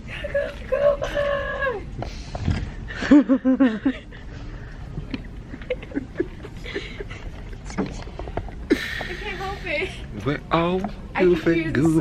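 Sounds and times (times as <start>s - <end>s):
person laughing: 2.9s - 4.2s.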